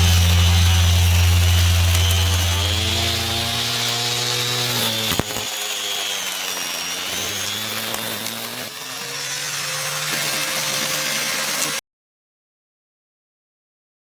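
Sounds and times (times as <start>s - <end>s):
grass cutter motor whining: 0.0s - 11.8s.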